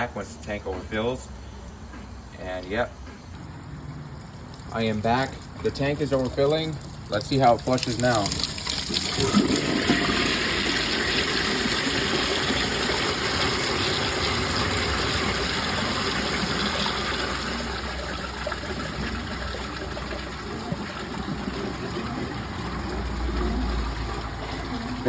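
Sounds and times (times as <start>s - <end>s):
toilet flushing: 3.7s - 25.0s.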